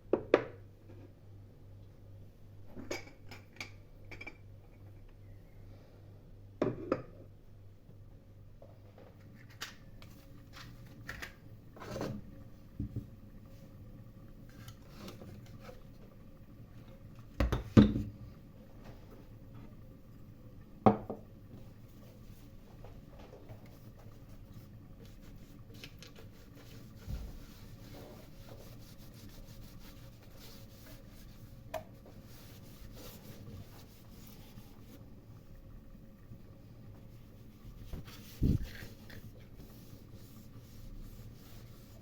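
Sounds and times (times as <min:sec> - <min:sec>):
rubbing and scraping: 0:25.2 - 0:35.0, 0:37.3 - 0:42.0.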